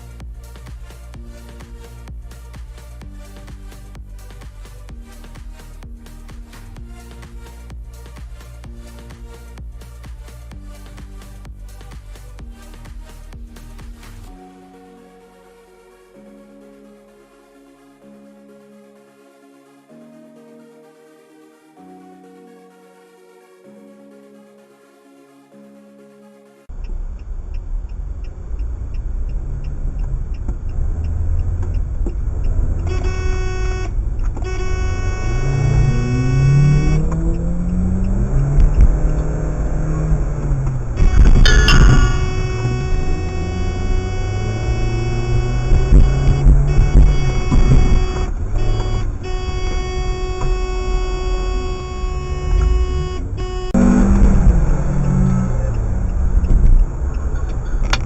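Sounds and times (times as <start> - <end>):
car road and engine rumble: 0.0 - 14.3, 26.7 - 58.0
car horn: 32.8 - 40.0, 40.9 - 55.8
engine revving up: 34.5 - 57.4.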